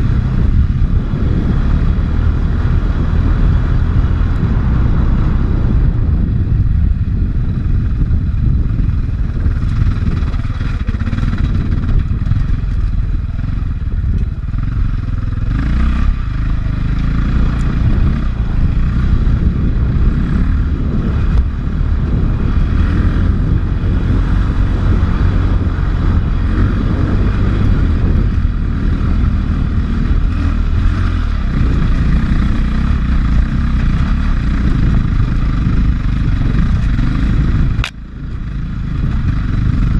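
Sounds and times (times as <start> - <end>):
dirt bike engine revving: 8.0 - 39.9.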